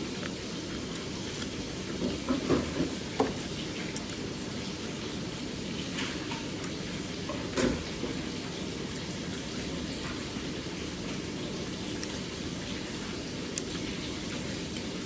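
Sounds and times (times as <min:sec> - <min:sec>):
eating crunches: 0:00.0 - 0:02.0, 0:11.8 - 0:15.0.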